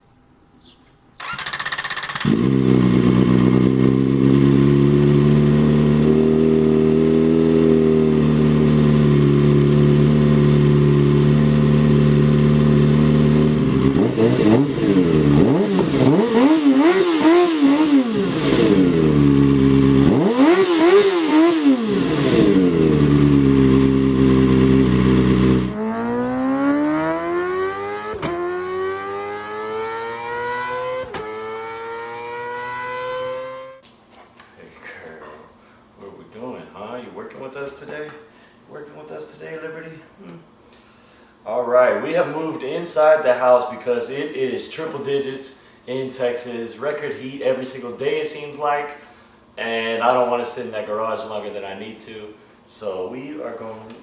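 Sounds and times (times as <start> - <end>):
motorcycle engine idling and revving: 1.2 - 33.8
quieter engine accelerating: 1.2 - 33.8.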